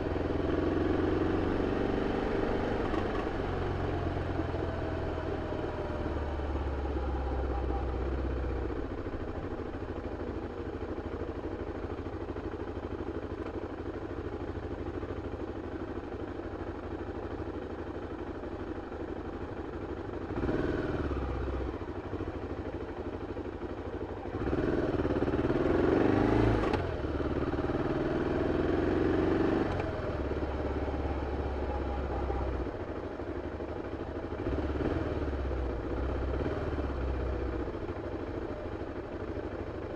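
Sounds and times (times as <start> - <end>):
motorcycle engine revving: 0.0 - 9.8, 20.2 - 22.7, 24.2 - 39.8.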